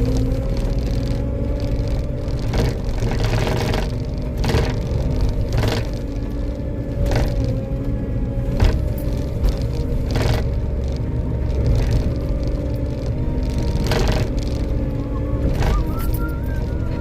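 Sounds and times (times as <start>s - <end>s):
knocks and rattles: 0.0s - 7.7s, 8.5s - 16.7s
skid steer engine whining: 0.0s - 17.0s.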